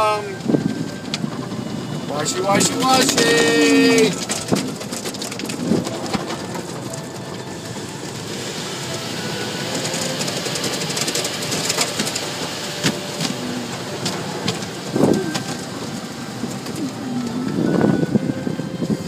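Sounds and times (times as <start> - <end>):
water spraying: 6.9 - 19.0.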